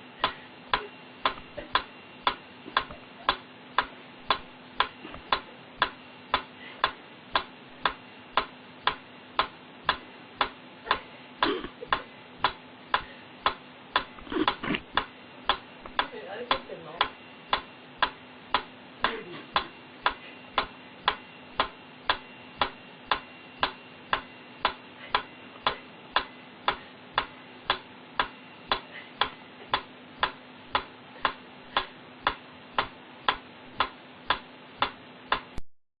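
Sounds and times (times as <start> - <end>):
faint steady hum: 0.0 - 35.6
metronome ticking: 11.9 - 35.6.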